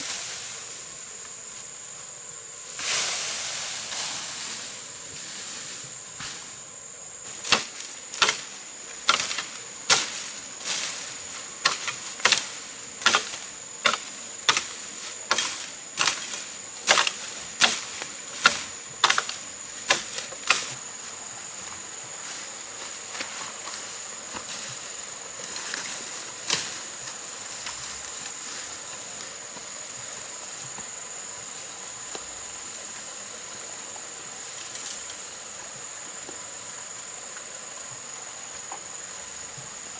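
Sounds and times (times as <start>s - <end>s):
insects droning: 0.0s - 39.9s
hand tool chopping blows: 7.4s - 10.3s, 11.6s - 20.8s.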